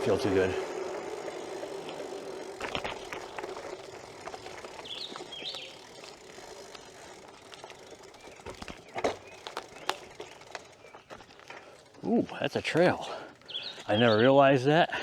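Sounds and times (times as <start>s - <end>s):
bike clicks and knocks: 0.0s - 14.3s
bike tyres rolling on trail: 0.0s - 15.0s
bird chirps: 4.2s - 6.1s, 13.4s - 14.4s.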